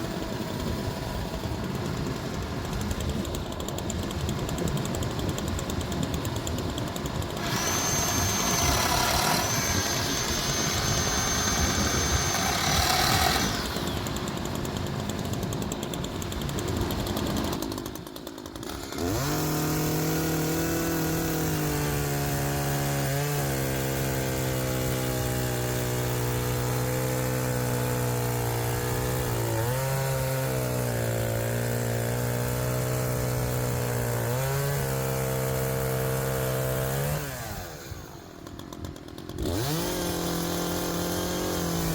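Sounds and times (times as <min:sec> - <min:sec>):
machine with high whine: 0:00.0 - 0:17.8
chainsaw engine at high revs: 0:00.0 - 0:41.9.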